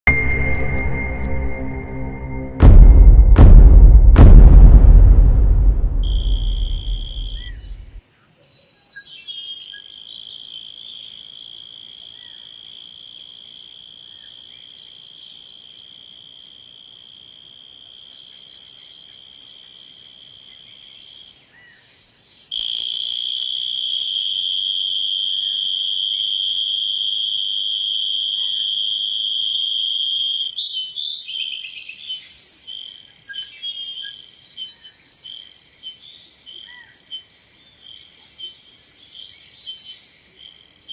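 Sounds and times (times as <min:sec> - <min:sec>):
deep rumble: 0:00.1 - 0:08.0
cicada buzzing: 0:09.6 - 0:21.3, 0:22.5 - 0:40.9.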